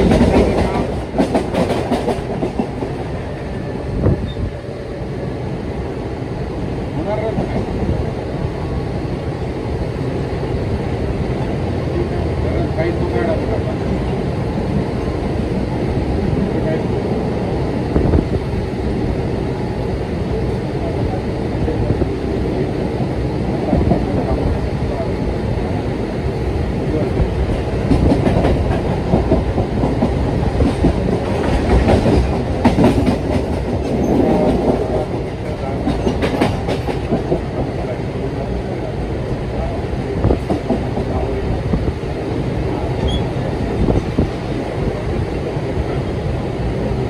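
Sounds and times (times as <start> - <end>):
clickety-clack track clatter: 0.0 - 3.2, 7.0 - 7.9, 23.0 - 25.0, 26.9 - 39.0, 39.6 - 41.9
train wheels rumbling on rails: 0.0 - 47.0.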